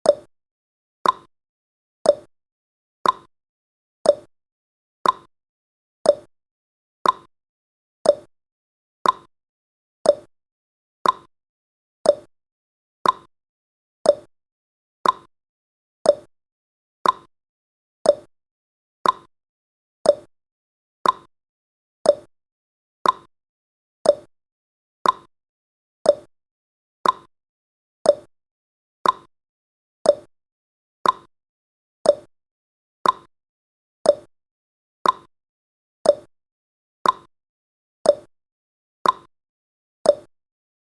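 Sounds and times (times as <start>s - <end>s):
clock ticking: 3.0s - 3.3s, 5.0s - 5.3s, 7.0s - 7.3s, 9.0s - 9.3s, 11.0s - 11.3s, 13.0s - 13.3s, 15.0s - 15.3s, 16.1s - 16.3s, 17.0s - 17.3s, 18.1s - 18.3s, 19.0s - 19.3s, 21.0s - 21.3s, 22.1s - 22.3s, 23.0s - 23.3s, 24.0s - 24.3s, 25.0s - 25.3s, 26.1s - 26.3s, 27.0s - 27.3s, 28.1s - 28.3s, 29.0s - 29.3s, 30.1s - 30.3s, 31.0s - 31.3s, 32.1s - 32.3s, 33.0s - 33.3s, 34.1s - 34.3s, 35.0s - 35.3s, 36.1s - 36.3s, 37.0s - 37.3s, 38.1s - 38.3s, 39.0s - 39.3s, 40.1s - 40.3s.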